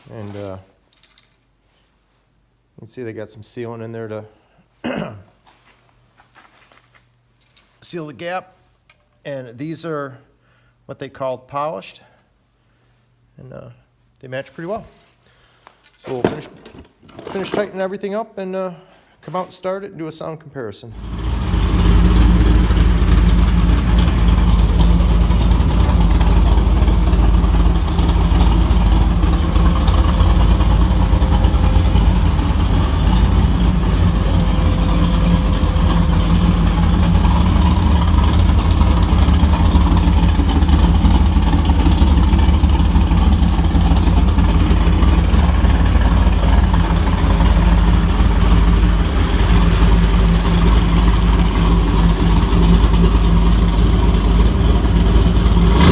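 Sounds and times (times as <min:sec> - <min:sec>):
vee eight engine exhaust running: 0:21.0 - 0:55.9.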